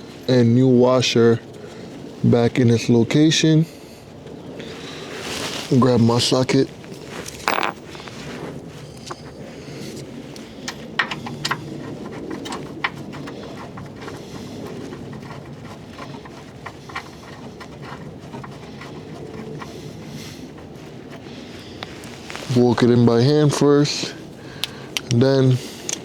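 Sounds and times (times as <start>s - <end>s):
low background hum: 0.0s - 26.0s
hand tools clicking and clinking: 6.9s - 8.2s, 24.6s - 26.0s.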